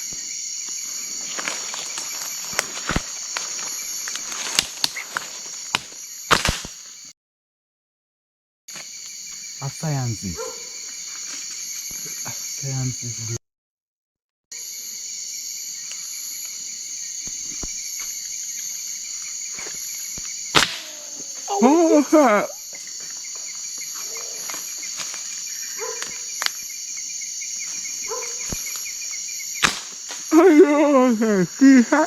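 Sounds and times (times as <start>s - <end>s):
insect chorus trilling: 0.0s - 7.1s, 8.7s - 13.4s, 14.5s - 32.0s
sharp snap: 5.8s - 6.8s, 20.5s - 21.2s, 29.6s - 30.2s.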